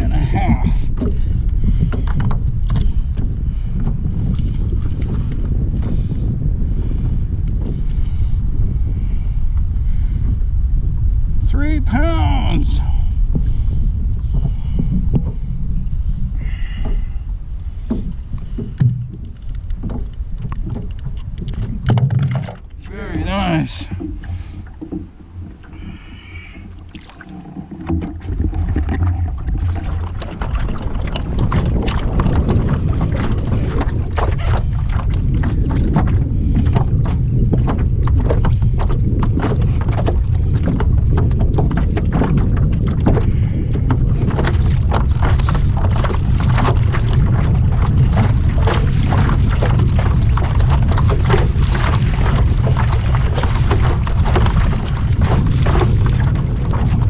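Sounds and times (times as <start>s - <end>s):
knocks against hull: 0.0s - 6.0s, 13.3s - 13.6s, 14.3s - 15.4s, 16.7s - 17.2s, 17.8s - 57.0s
wind buffeting microphone: 0.0s - 57.0s
water slapping: 16.3s - 57.0s.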